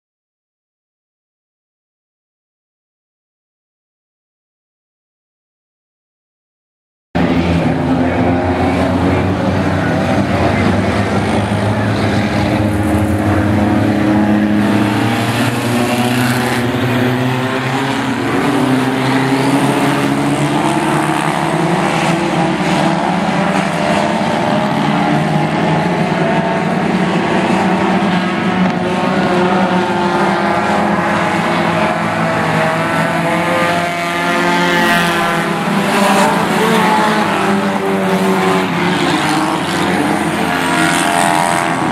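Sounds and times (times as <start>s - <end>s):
race car engines roaring: 7.2s - 41.9s.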